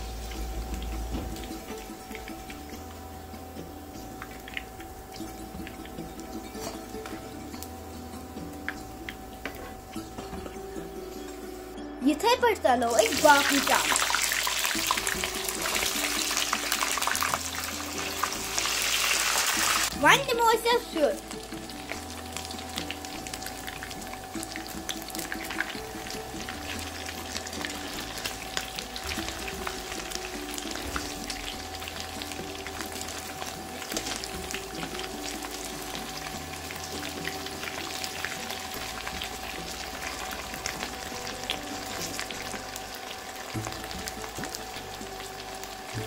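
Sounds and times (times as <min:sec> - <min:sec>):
cheese sizzling in hot oil: 0:00.0 - 0:46.0.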